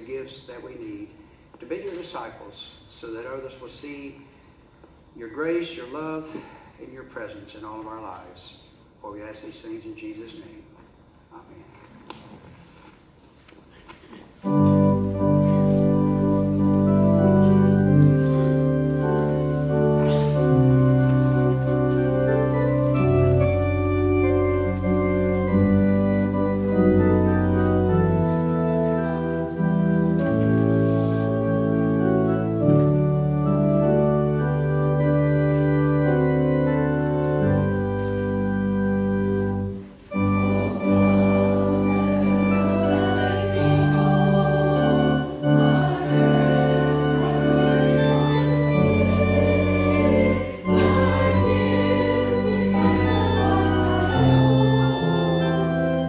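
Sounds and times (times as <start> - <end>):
organ playing sustained chords: 14.4 - 56.0.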